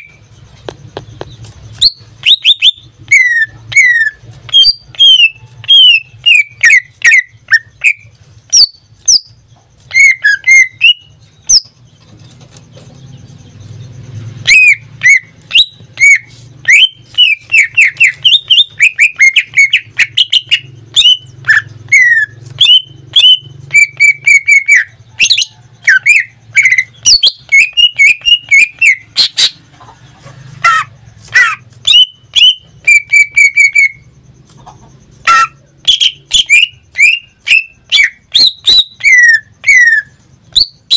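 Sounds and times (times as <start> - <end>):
bird singing whistles and trills: 0.0 - 29.6, 30.8 - 34.2, 34.9 - 40.9.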